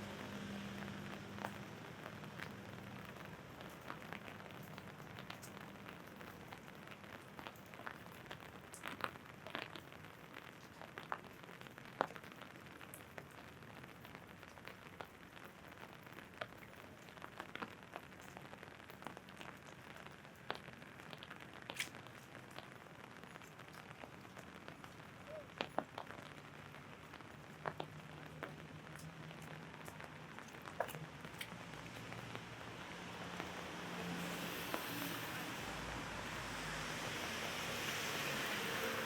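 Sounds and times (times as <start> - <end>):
rain on an umbrella: 0.0 - 39.0
large drops tapping umbrella: 25.5 - 32.4.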